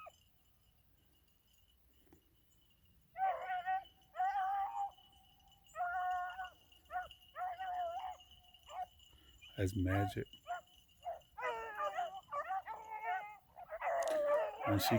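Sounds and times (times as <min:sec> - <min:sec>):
dog baying: 0:03.2 - 0:05.0, 0:05.7 - 0:08.9, 0:09.9 - 0:14.9.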